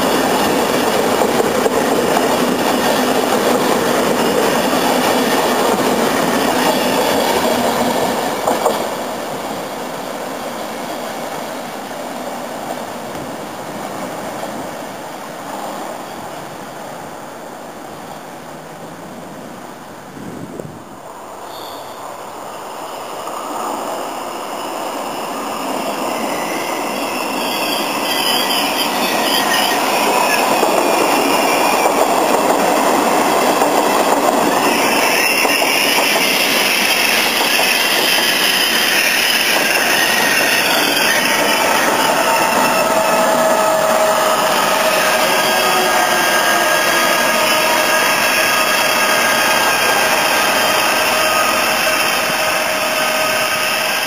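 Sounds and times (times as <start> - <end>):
train wheels rumbling on rail: 0.0 - 17.1, 17.8 - 54.0
wheels and brakes squealing: 2.3 - 8.9, 21.4 - 32.3, 33.4 - 54.0.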